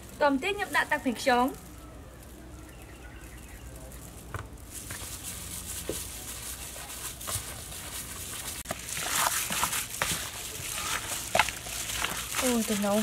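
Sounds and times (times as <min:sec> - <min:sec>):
plastic glove crinkling: 0:00.0 - 0:13.0
wet squelching: 0:08.2 - 0:13.0.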